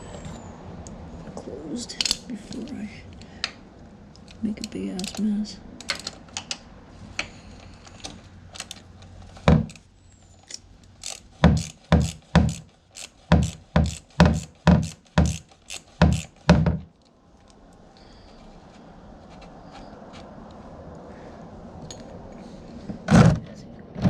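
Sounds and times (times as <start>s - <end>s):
ratchet tool clicking: 10.5s - 16.5s.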